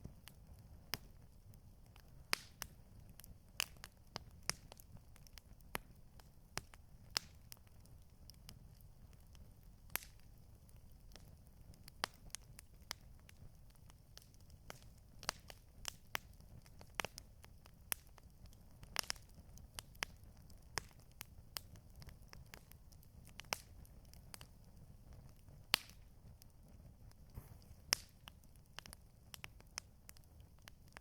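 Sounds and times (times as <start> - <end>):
campfire popping and snapping: 0.0 - 31.0.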